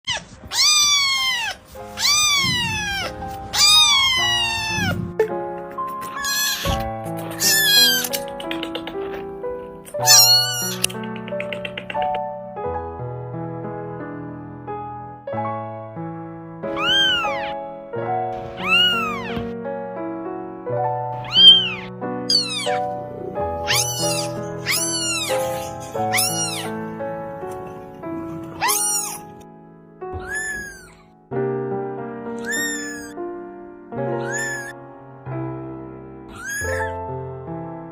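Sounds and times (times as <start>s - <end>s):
cat meowing: 0.0s - 5.2s, 6.0s - 8.2s, 10.0s - 11.0s, 16.7s - 17.6s, 18.4s - 19.5s, 21.2s - 22.9s, 23.6s - 26.8s, 28.6s - 29.4s, 30.2s - 31.1s, 32.4s - 33.2s, 34.2s - 34.8s, 36.3s - 37.0s
background music with held notes: 0.4s - 30.4s.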